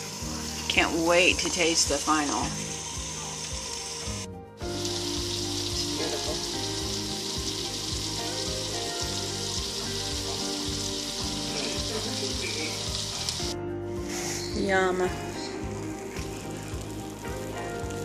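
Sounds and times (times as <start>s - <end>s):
background music with sustained chords: 0.0s - 18.0s
steady high hiss: 0.0s - 18.0s.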